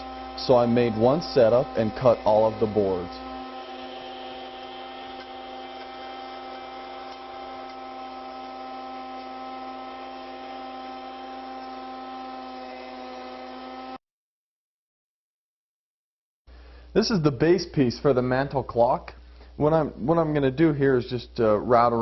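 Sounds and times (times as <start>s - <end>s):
electric hum: 0.0s - 14.0s.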